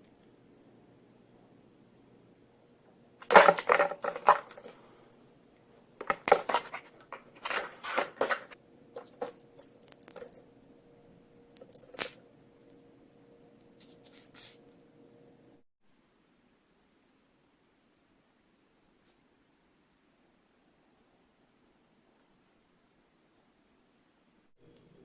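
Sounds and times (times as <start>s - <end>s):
hard objects clattering and clinking: 3.2s - 5.2s, 6.0s - 10.4s.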